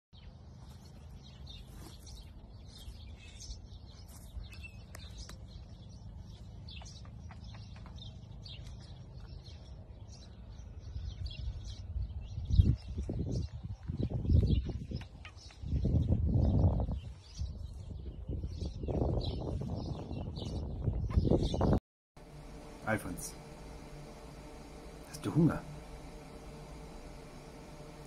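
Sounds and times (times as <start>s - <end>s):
small birds chirping: 0.2s - 28.0s
steady low rumble: 22.2s - 28.0s.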